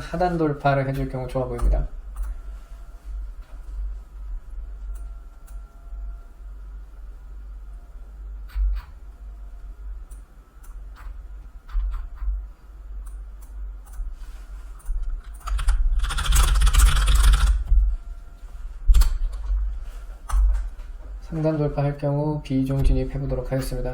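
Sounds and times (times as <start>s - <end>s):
computer keyboard and mouse clicks: 14.8s - 17.6s.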